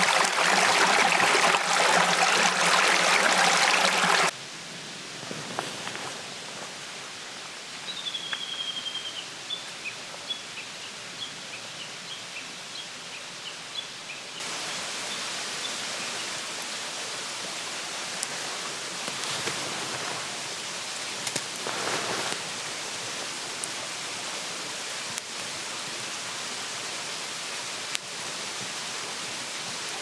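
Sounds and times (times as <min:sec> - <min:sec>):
mountain stream rushing: 0:00.0 - 0:04.4, 0:14.4 - 0:30.0
songbird whistling and chirping: 0:07.9 - 0:09.6.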